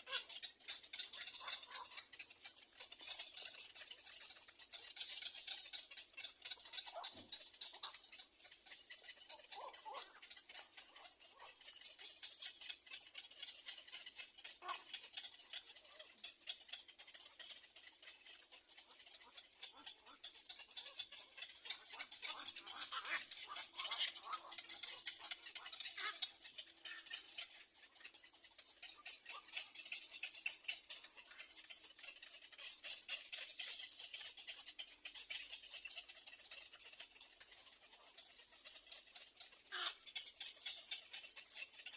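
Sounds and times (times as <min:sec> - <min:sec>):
bird chicks short calls: 0:00.0 - 0:16.2, 0:18.8 - 0:35.2, 0:39.6 - 0:41.9
bird chicks ticking chatter: 0:00.0 - 0:41.9.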